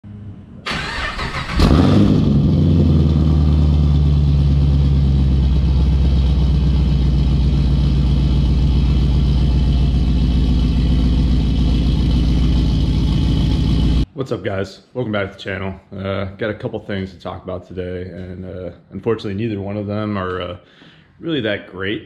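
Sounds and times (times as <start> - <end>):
car engine starting and idling: 0.6 - 14.1
engine revving: 0.7 - 14.0.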